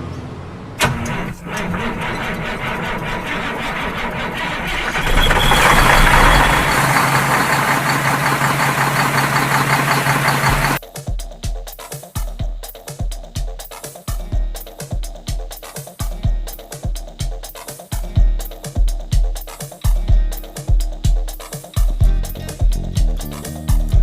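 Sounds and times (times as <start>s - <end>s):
vehicle engine running: 0.0s - 10.8s
music with regular beat: 10.4s - 24.0s.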